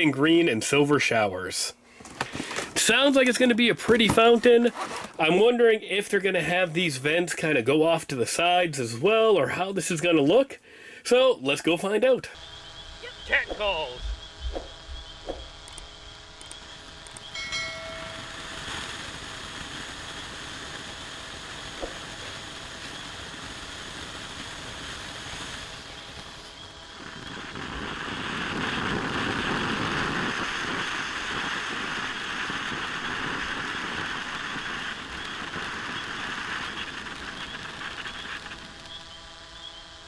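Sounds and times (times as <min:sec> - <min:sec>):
firework crackling: 0:12.4 - 0:40.0
firework fountain hissing: 0:12.4 - 0:40.0.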